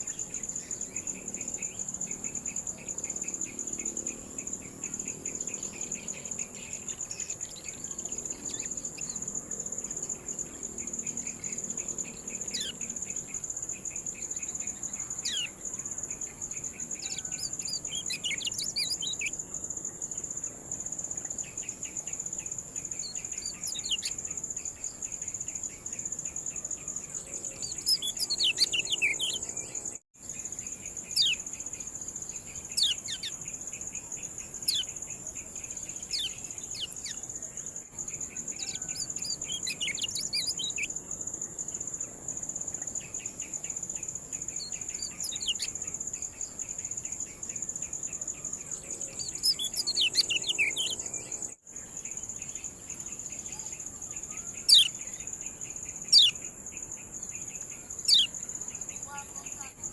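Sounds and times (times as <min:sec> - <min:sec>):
high-pitched insect whine: 0:00.0 - 0:59.9
bird sharp chirps: 0:16.9 - 0:19.3, 0:23.0 - 0:24.3, 0:27.6 - 0:29.9, 0:31.1 - 0:31.4, 0:38.5 - 0:40.9, 0:44.6 - 0:45.9, 0:48.9 - 0:51.2, 0:53.5 - 0:55.0, 0:56.0 - 0:56.4, 0:57.5 - 0:58.4.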